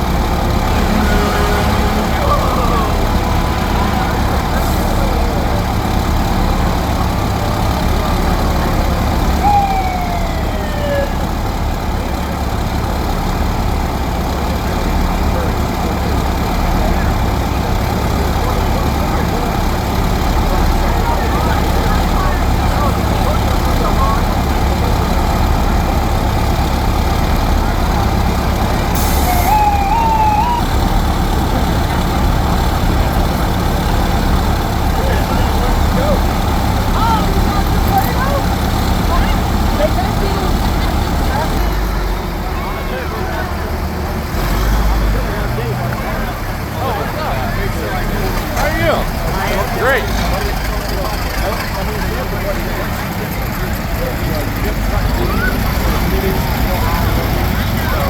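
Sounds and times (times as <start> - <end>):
fire truck engines rumbling: 0.0 - 58.0
rising siren-like tone: 9.4 - 11.4, 29.0 - 30.8
air brake hiss: 29.0 - 29.5.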